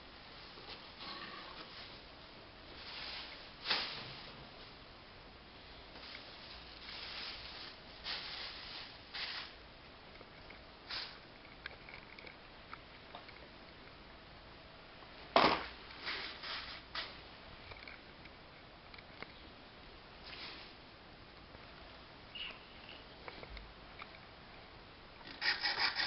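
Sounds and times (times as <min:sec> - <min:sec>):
rustles and clicks of handling: 0:05.9 - 0:14.0.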